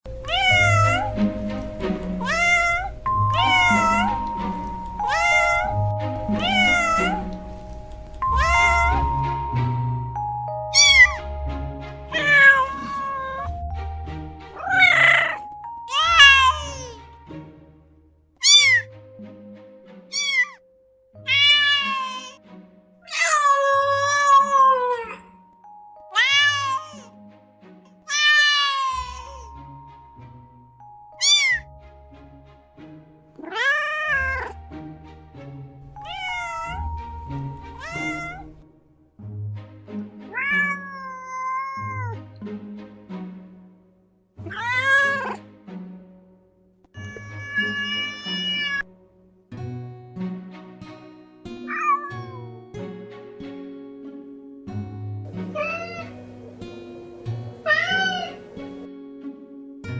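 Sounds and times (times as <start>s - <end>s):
background music with held notes: 0.0s - 59.9s
kitten meowing: 0.1s - 9.5s, 10.7s - 11.2s, 12.1s - 13.8s, 14.6s - 17.0s, 18.4s - 18.9s, 20.1s - 20.6s, 21.2s - 22.4s, 23.0s - 25.2s, 26.1s - 27.2s, 28.0s - 29.6s, 31.1s - 31.8s, 33.4s - 34.6s, 35.9s - 38.5s, 40.3s - 42.2s, 44.4s - 45.4s, 47.0s - 48.9s, 51.7s - 52.5s, 55.4s - 56.3s, 57.6s - 58.5s.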